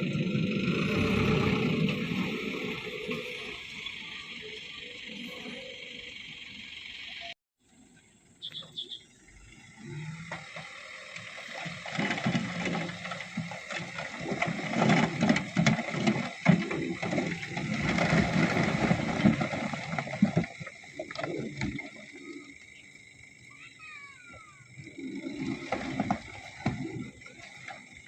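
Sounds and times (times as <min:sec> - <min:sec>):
low rumble: 0:00.0 - 0:04.3
stones clattering off truck bed: 0:10.4 - 0:21.8, 0:25.4 - 0:28.0.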